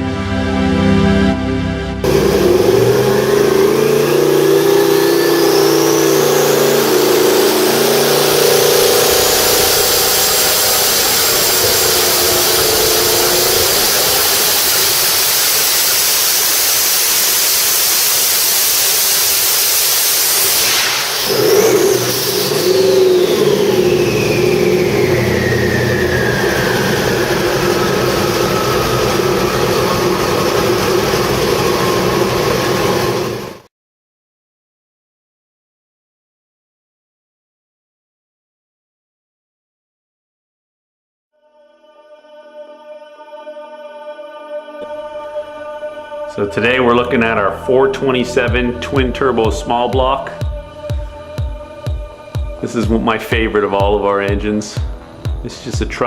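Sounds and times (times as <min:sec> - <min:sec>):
car engine running hard: 0:02.0 - 0:33.7
turbo whine: 0:02.0 - 0:33.7, 0:44.8 - 0:56.0
turbo whoosh: 0:18.7 - 0:33.7.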